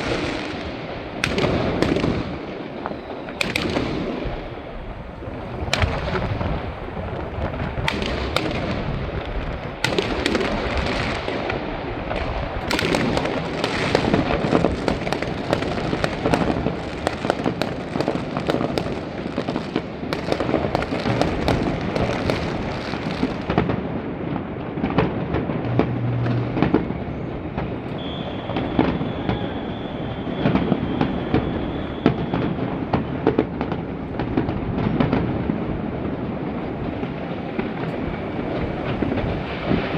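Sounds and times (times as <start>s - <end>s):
fireworks bangs and crackling: 0.0s - 39.9s
rolling rumble: 25.5s - 28.6s
thin high steady tone: 25.7s - 27.4s.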